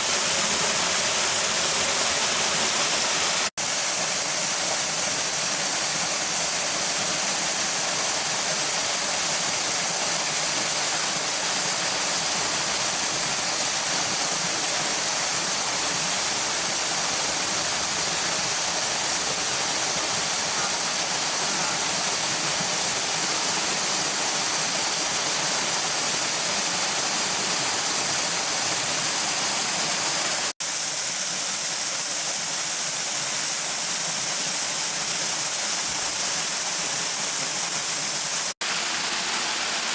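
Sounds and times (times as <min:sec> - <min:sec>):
waterfall roaring: 0:00.0 - 0:03.5.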